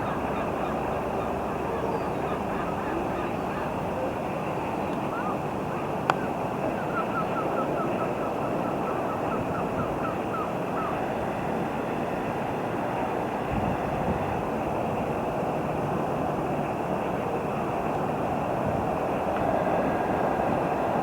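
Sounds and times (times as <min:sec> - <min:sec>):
train rushing rumble: 0:11.1 - 0:21.0.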